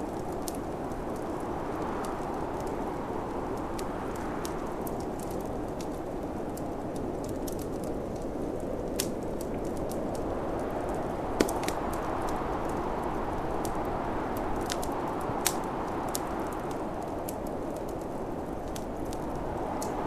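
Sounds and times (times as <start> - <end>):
snowstorm wind rushing: 0.0 - 20.0
wood fire crackling: 0.0 - 20.0
fire popping loudly: 10.8 - 12.1.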